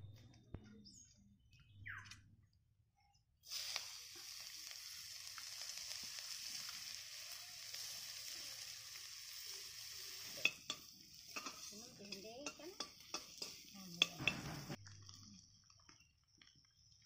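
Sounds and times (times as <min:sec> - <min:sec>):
food sizzling in hot oil: 0:03.4 - 0:16.4.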